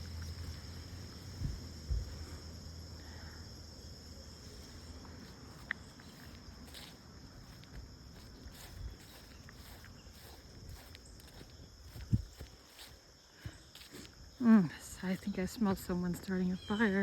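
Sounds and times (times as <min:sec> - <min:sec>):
soft footsteps on trail: 0:00.0 - 0:02.7, 0:04.3 - 0:17.0
crickets chirping: 0:00.0 - 0:17.0
low thumps: 0:01.3 - 0:02.4.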